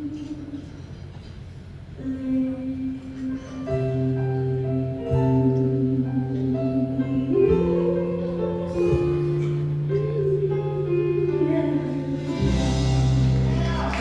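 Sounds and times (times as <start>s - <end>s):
live band playing instrumental music: 12.1s - 14.0s.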